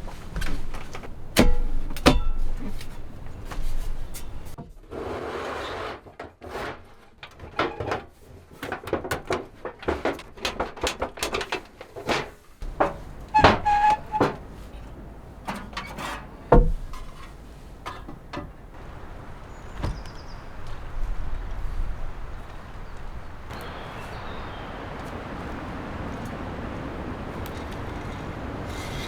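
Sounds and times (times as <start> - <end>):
wooden knocks and clatters: 0.0 - 4.8, 6.2 - 23.8
short squeaky creak: 12.6 - 18.9.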